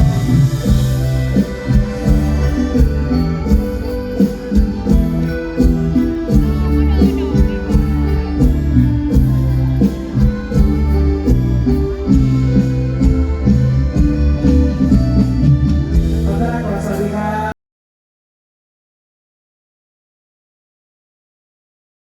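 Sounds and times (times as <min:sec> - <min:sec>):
band music with heavy bass: 0:00.0 - 0:17.5.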